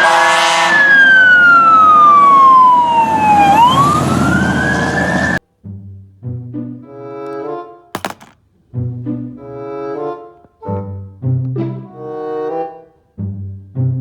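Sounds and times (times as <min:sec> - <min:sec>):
emergency vehicle siren wailing: 0:00.0 - 0:05.4.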